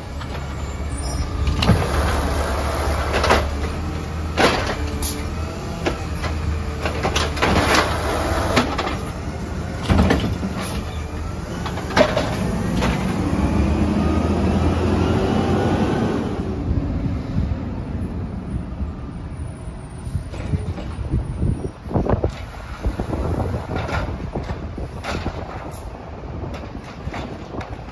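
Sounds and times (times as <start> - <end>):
garbage truck engine drone: 0.0 - 27.9
metal clanks and knocks: 4.4 - 5.2, 11.6 - 13.1, 23.7 - 25.8.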